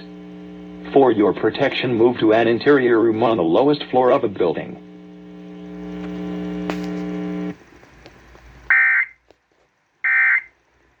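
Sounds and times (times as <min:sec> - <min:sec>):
steady low buzz: 0:00.0 - 0:07.7.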